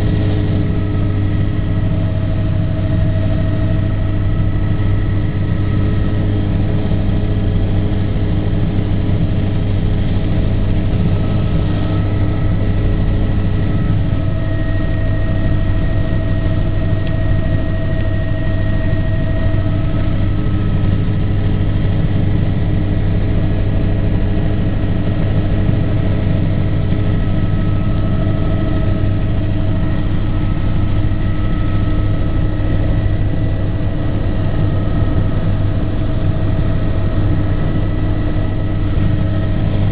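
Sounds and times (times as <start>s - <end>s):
aircraft engine drone: 0.0s - 39.9s.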